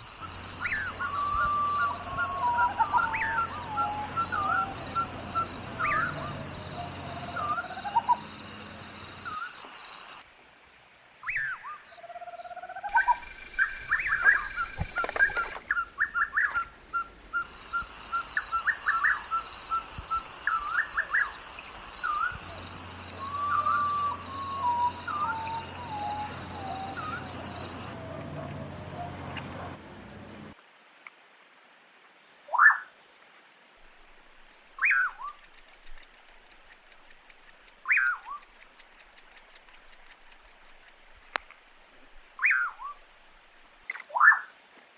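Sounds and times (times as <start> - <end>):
birds calling and singing: 0.2 - 9.2, 12.9 - 30.6, 34.4 - 41.0.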